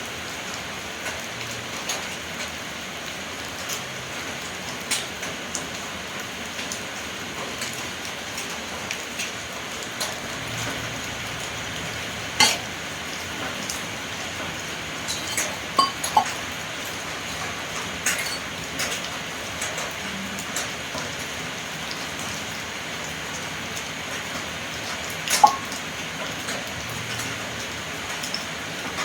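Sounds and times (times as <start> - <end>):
metallic clicks and clinks: 18.1 - 18.4.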